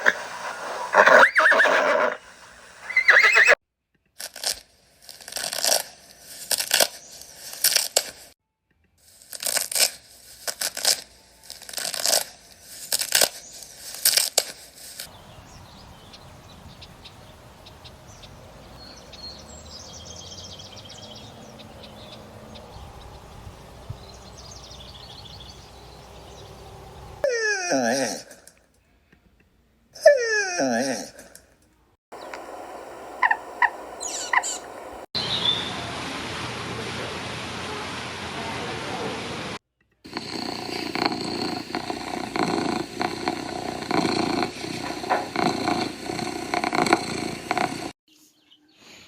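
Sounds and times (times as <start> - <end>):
horse neighing: 0.0 - 3.6
faint high chirps: 32.2 - 35.9.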